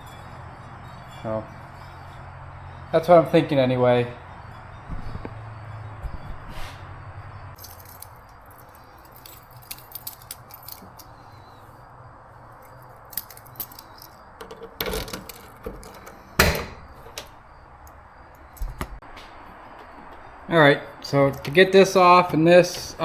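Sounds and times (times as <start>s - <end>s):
light clicks and rattles: 7.6s - 11.3s, 12.6s - 19.0s, 21.0s - 23.0s.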